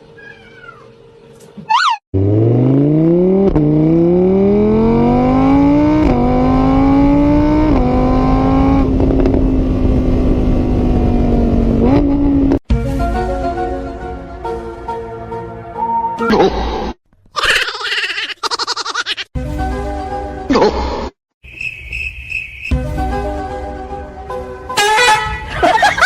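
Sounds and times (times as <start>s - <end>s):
car engine accelerating: 2.2s - 12.6s.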